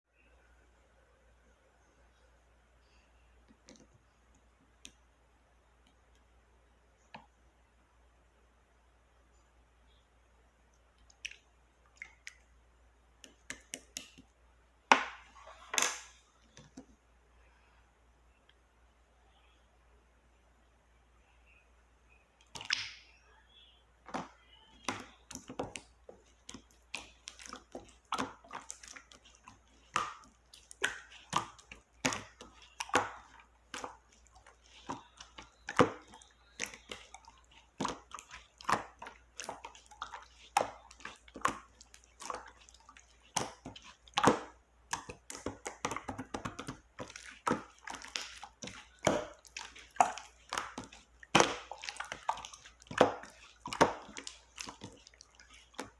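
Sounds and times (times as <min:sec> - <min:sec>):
slime squished by hand: 0:24.2 - 0:55.9.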